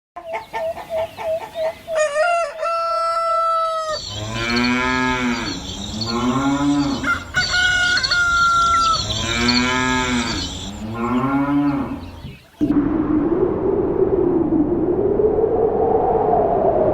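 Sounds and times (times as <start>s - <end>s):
hen clucking: 0.2s - 12.7s
rooster crowing: 1.9s - 10.9s
cows mooing: 3.5s - 12.4s.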